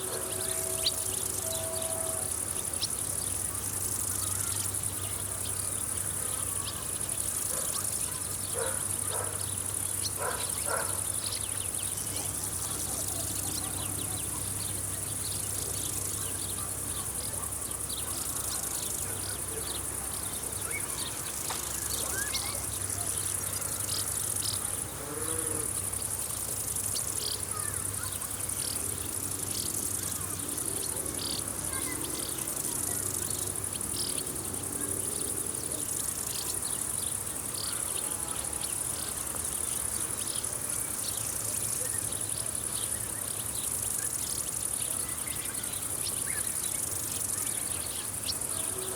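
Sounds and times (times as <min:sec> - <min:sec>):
insect chirps: 0:00.0 - 0:48.9
insects trilling: 0:00.0 - 0:48.9.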